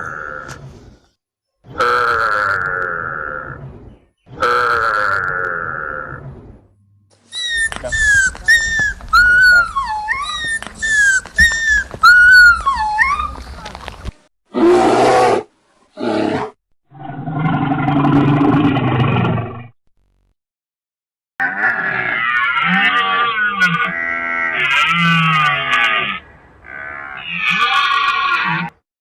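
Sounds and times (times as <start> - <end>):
long low animal call: 7.3 - 13.3
short high animal calls: 7.3 - 13.3
low animal calls: 7.3 - 13.5.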